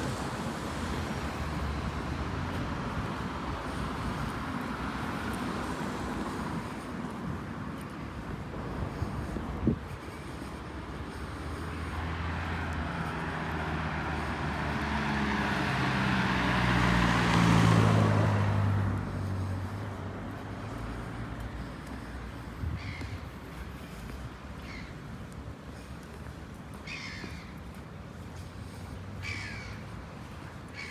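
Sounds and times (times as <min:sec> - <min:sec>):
traffic hum: 0:00.0 - 0:30.9
vehicle passing close by: 0:11.4 - 0:22.0.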